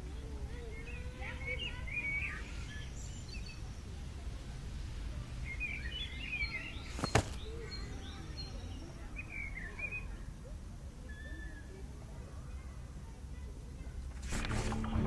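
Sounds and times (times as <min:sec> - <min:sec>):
small birds chirping: 0:00.0 - 0:15.0
low outdoor rumble: 0:14.0 - 0:15.0.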